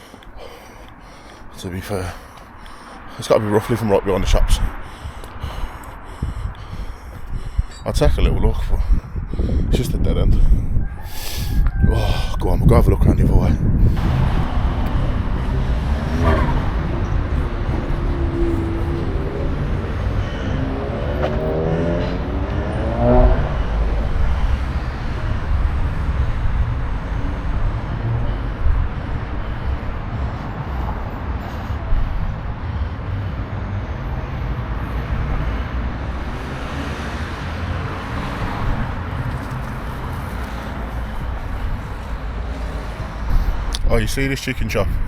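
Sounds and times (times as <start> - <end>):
low traffic rumble: 0.0 - 45.0
vehicle accelerating past: 13.9 - 31.4, 32.3 - 43.3.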